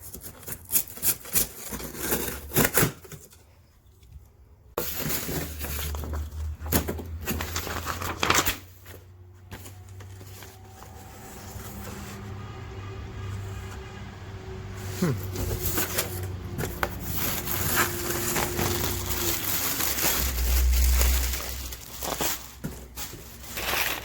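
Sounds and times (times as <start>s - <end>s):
packaging crinkling and tearing: 4.8s - 8.8s, 15.4s - 24.0s
packaging rustles and clicks: 15.4s - 24.0s.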